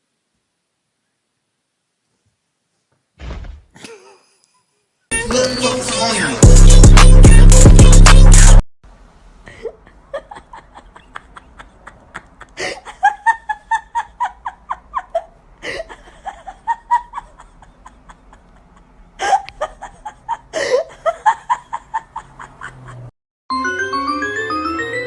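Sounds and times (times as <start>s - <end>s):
person laughing: 3.8s - 4.4s, 9.5s - 23.1s.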